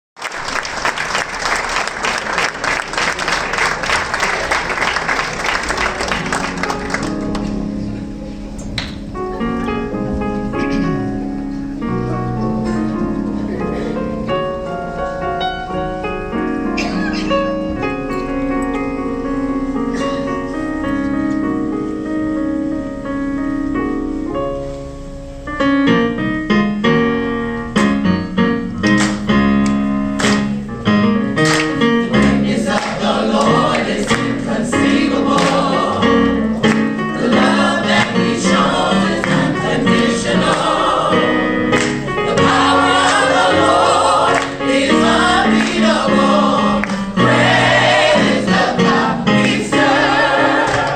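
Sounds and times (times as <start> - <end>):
audience applauding: 0.2 - 7.5, 41.8 - 44.6, 50.6 - 50.9
keyboard chords: 2.5 - 50.9.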